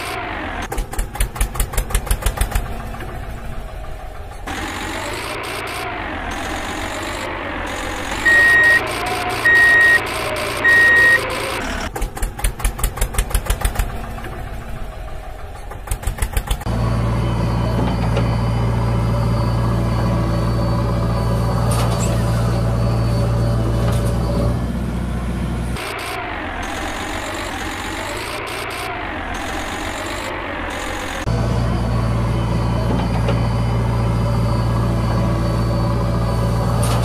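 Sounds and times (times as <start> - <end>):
engine chugging in rapid pulses: 0.0 - 37.0
heavy vehicle engine running: 0.0 - 37.0
reversing beeps: 6.4 - 11.9, 25.8 - 37.0.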